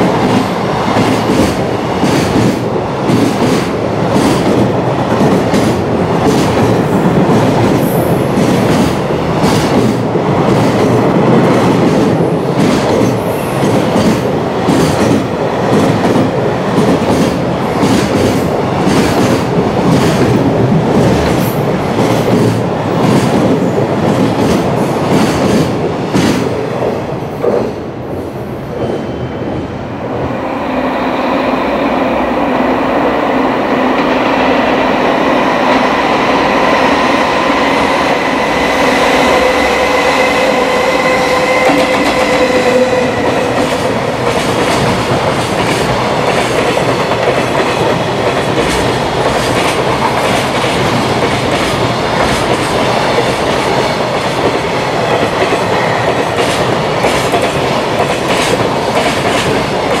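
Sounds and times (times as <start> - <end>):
train wheels clickety-clack: 0.0 - 27.8, 35.7 - 60.0
freight train rumble: 0.0 - 60.0.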